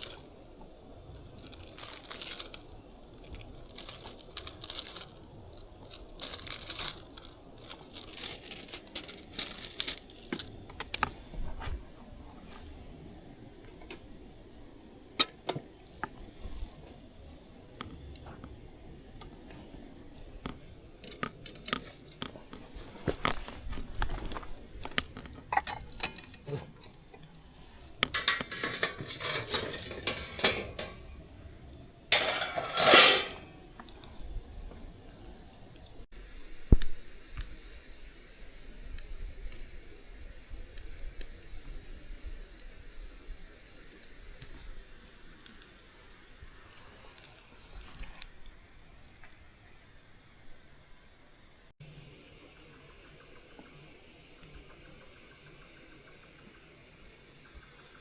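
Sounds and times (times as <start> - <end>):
cookware and utensils clattering: 25.4 - 26.9, 28.0 - 31.2, 32.1 - 33.6.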